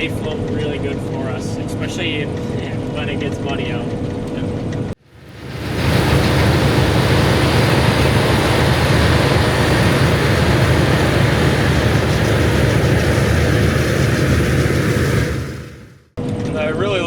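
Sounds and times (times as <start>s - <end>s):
diesel machinery engine hum: 0.0s - 17.0s
mechanical rush: 5.0s - 17.0s.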